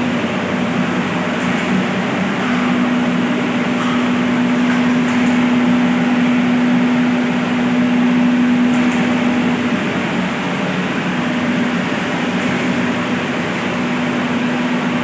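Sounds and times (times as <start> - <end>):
electric water pumps humming: 0.0 - 15.0.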